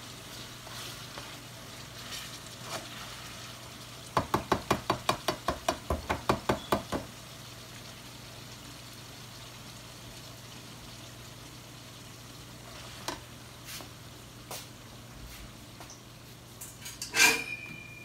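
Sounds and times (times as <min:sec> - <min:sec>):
meat sizzling in a skillet: 0:00.0 - 0:16.6.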